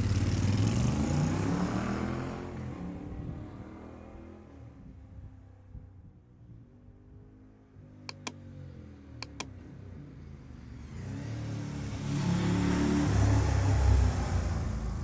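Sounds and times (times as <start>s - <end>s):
sharp clicks: 8.1s - 8.4s, 9.2s - 9.5s.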